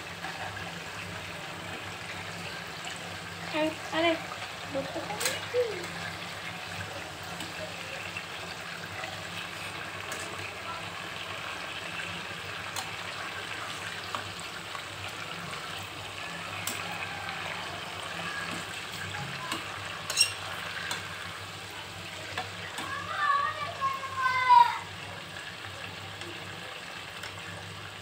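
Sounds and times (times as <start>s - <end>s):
chicken sizzling in oil: 0.0s - 28.0s
metal tongs clicking and scraping: 20.1s - 21.0s.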